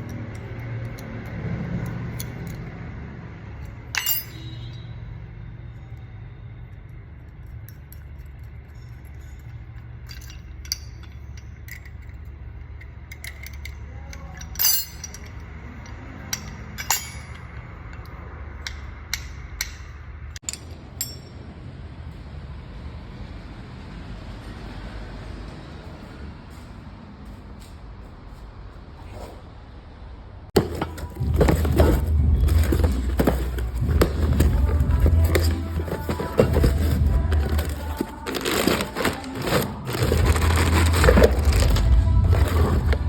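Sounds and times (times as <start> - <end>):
metal tools clinking: 3.6 - 4.9, 7.4 - 21.4, 30.6 - 43.0.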